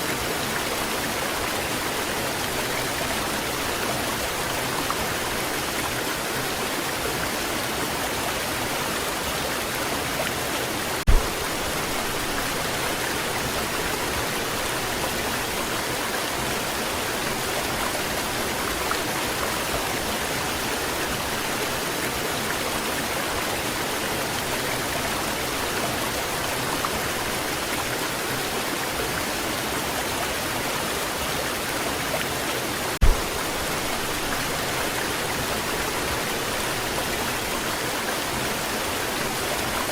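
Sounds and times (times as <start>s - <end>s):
waterfall rushing: 0.0s - 39.9s
low thumps: 11.1s - 12.1s, 33.0s - 34.6s.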